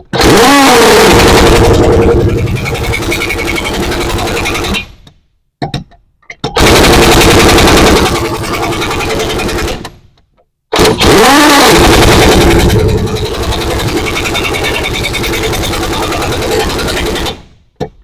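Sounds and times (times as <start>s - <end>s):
impact wrench hammering: 0.0s - 4.9s, 10.8s - 17.9s.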